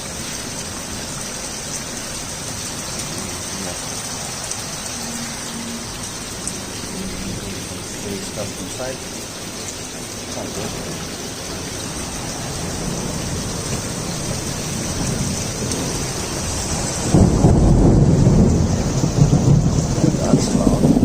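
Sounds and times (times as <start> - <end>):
heavy rain falling: 0.0 - 21.0
rolling thunder: 10.4 - 21.0.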